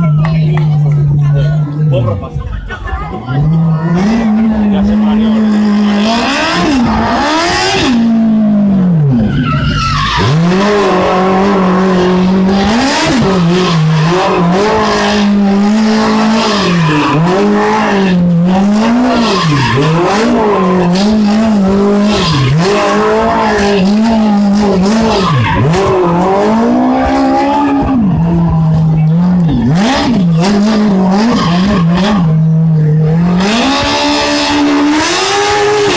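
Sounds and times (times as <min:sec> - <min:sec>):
car engine revving: 0:00.0 - 0:35.9
tyres squealing: 0:09.2 - 0:26.4.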